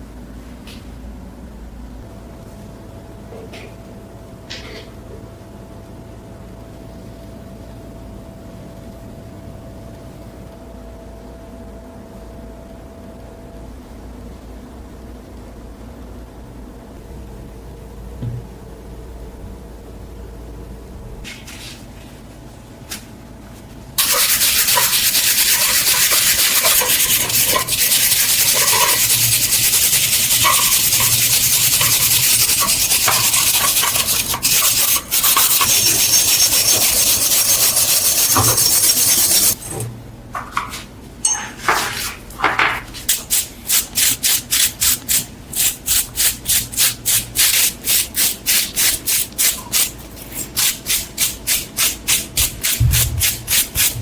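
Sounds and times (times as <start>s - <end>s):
abrasive rubbing on knife: 24.0s - 39.6s, 43.1s - 54.0s.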